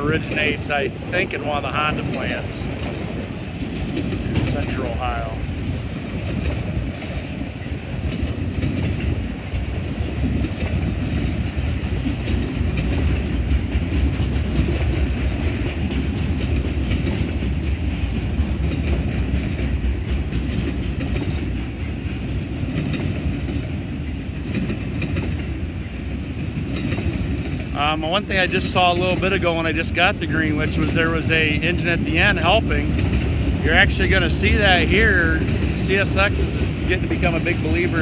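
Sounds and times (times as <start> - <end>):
freight train rumbling past: 0.0 - 38.0
wheels clicking over rail joints: 0.0 - 38.0.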